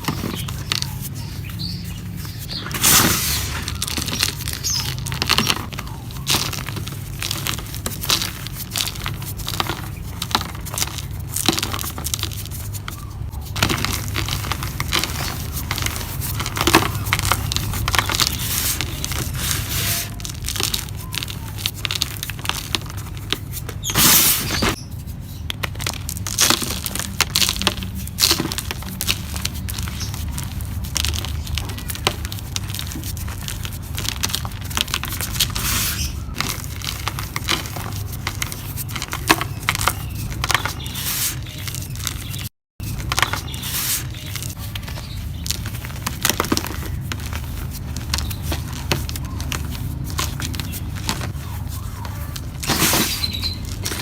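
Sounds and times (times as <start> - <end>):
dry mud cups crumbling and crunching: 0.0 - 54.0.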